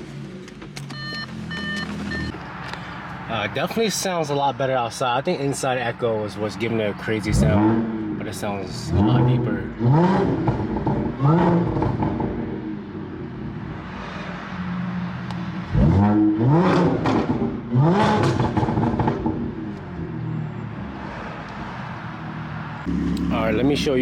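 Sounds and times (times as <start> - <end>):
engine throttle blips: 0.5 - 2.4, 22.8 - 24.0
car engine idling: 22.2 - 24.0.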